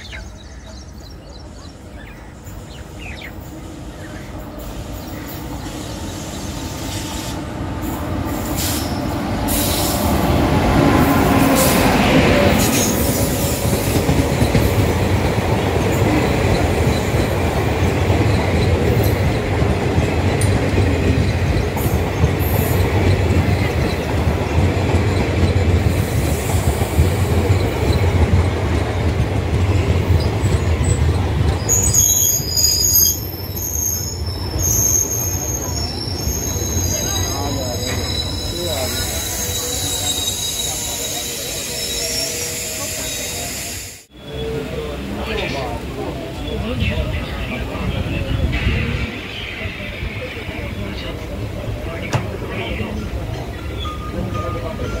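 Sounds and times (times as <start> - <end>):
train wheels rumbling on track: 0.0 - 55.0
wheel squeal: 31.6 - 44.6.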